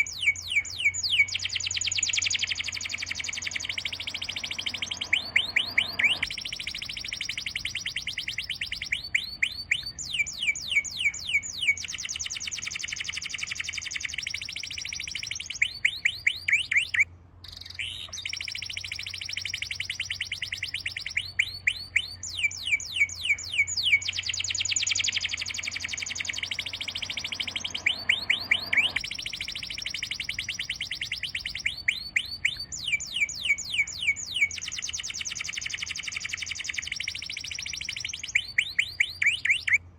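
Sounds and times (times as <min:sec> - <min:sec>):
songbird whistled song: 0:00.0 - 0:39.9
high-pitched background chorus: 0:03.2 - 0:06.3, 0:25.3 - 0:29.0.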